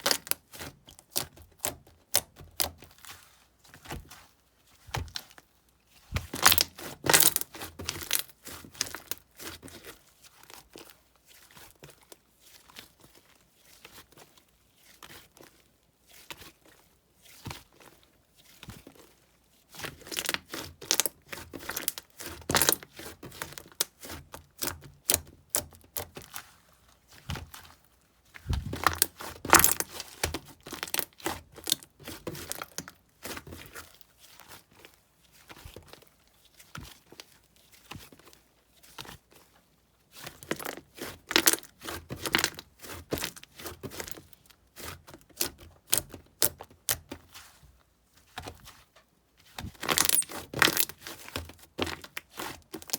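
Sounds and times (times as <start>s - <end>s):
slime kneaded by hand: 0.0s - 10.8s, 18.6s - 39.5s, 48.3s - 52.9s.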